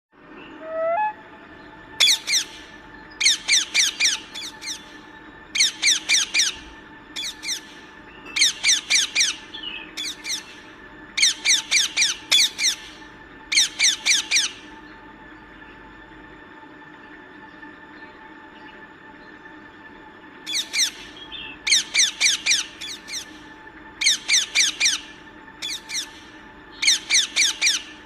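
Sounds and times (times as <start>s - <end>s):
parrot squawking: 2.0s - 4.9s, 5.6s - 7.8s, 8.4s - 10.6s, 11.2s - 14.6s, 20.5s - 23.4s, 24.0s - 28.0s.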